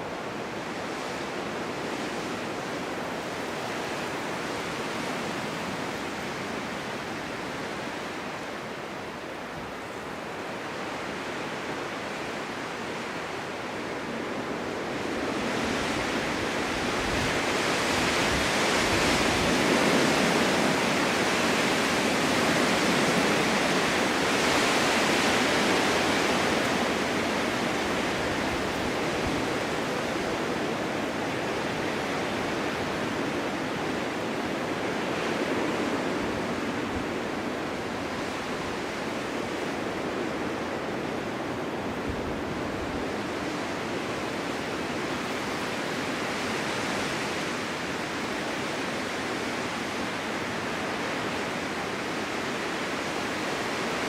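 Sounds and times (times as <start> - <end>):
wind blowing: 13.9 - 43.8.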